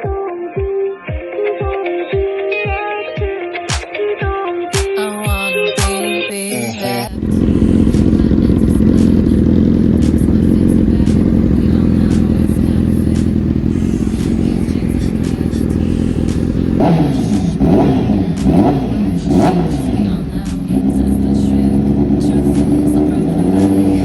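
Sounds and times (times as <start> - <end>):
music: 0.0 - 24.0
motorcycle engine idling and revving: 7.1 - 24.0.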